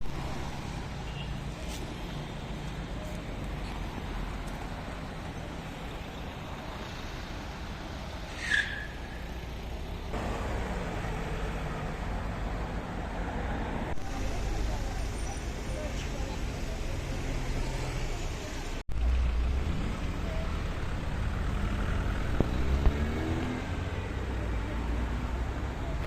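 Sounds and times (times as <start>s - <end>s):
road traffic rumble: 0.0s - 26.0s
short high-pitched squeak: 8.3s - 9.0s.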